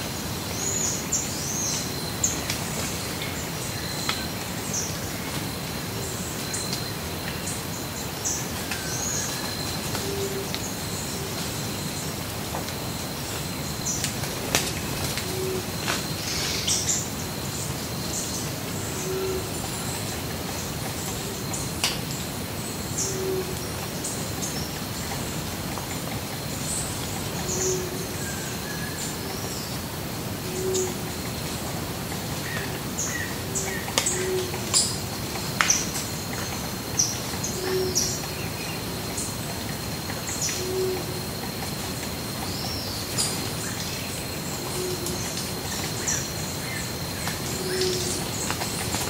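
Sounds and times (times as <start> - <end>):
birds chirping and twittering: 0.1 - 49.0
low hooting bird call: 19.0 - 19.6.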